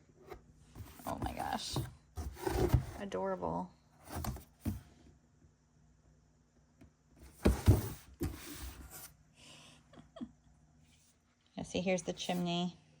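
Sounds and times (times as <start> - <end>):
cardboard rustling and scraping: 0.3 - 3.1, 4.0 - 5.0, 7.2 - 9.1.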